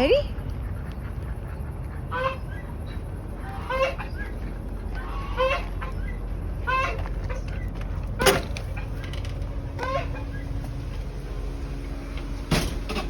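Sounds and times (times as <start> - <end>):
chicken calling: 0.0 - 9.0, 9.7 - 10.7
steady low rumble: 0.0 - 13.0.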